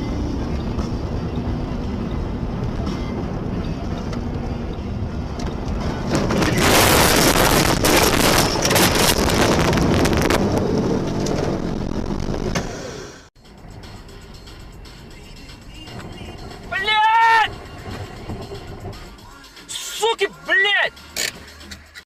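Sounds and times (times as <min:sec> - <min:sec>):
car engine and road rumble: 0:00.0 - 0:22.0
loud rushing crackling noise: 0:05.9 - 0:12.6.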